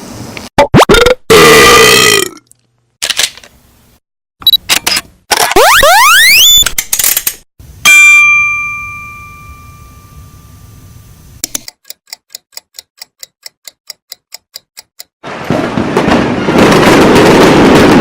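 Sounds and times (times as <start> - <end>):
bell-like ding: 7.9 - 10.8
clock ticking: 11.4 - 15.2.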